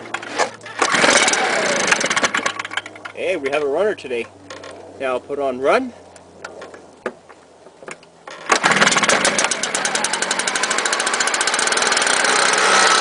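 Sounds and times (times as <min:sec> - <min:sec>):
leaf blower engine idling: 0:00.2 - 0:02.9, 0:08.3 - 0:13.0.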